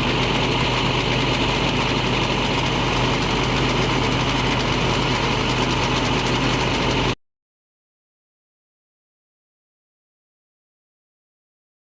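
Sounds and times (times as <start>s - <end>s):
diesel truck engine running: 0.0s - 7.2s.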